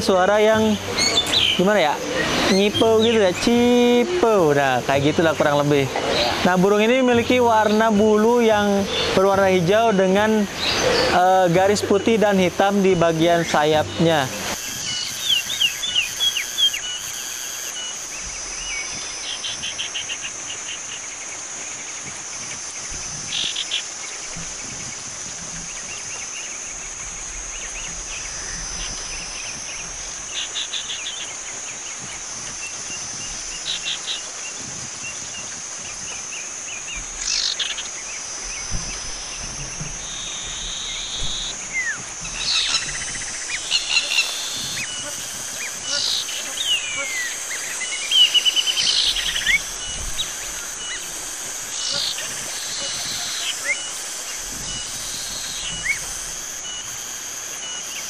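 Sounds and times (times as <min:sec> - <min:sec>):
high-pitched insect drone: 0:00.0 - 0:58.0
bird calling quick chirps: 0:37.2 - 0:56.9.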